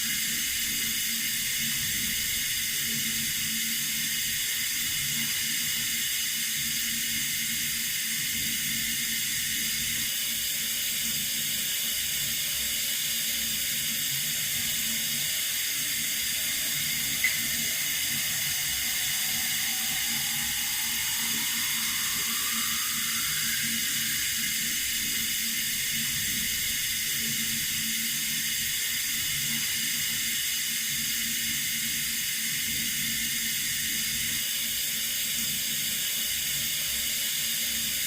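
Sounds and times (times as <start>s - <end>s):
water running from a tap: 0.0s - 34.2s
faint rising tone: 14.4s - 26.6s.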